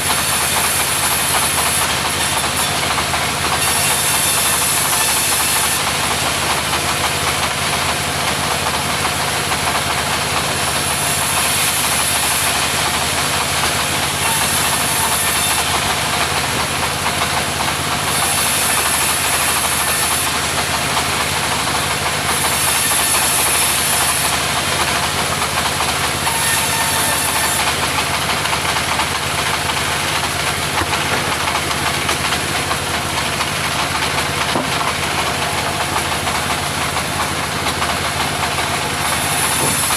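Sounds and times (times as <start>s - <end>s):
sawmill engine running: 0.0s - 39.9s
saw blade hissing through timber: 22.3s - 24.8s, 39.0s - 39.9s.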